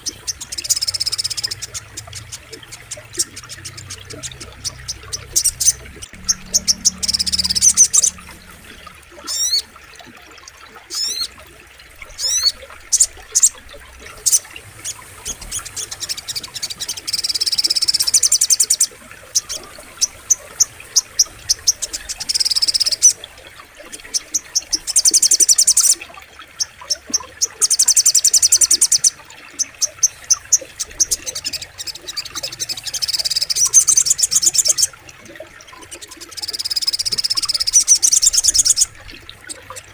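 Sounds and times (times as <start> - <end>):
bird chattering trills: 0.0 - 9.7.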